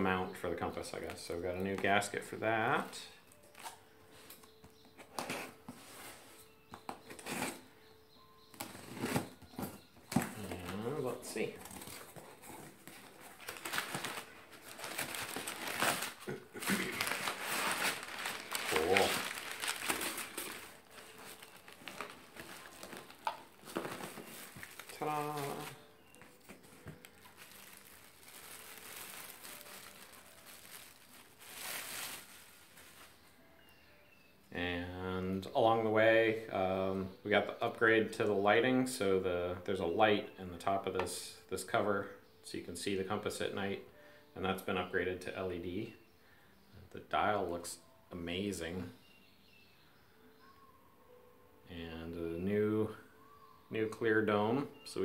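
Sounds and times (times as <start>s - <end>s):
packaging rustling: 8.6s - 33.3s.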